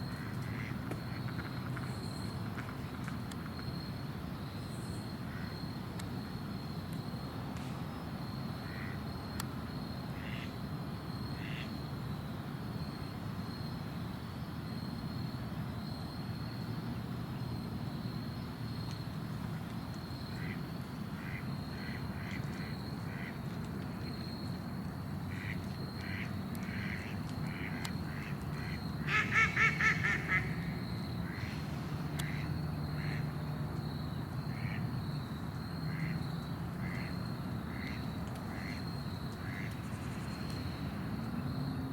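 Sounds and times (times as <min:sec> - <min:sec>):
ducks quacking: 0:25.3 - 0:30.6.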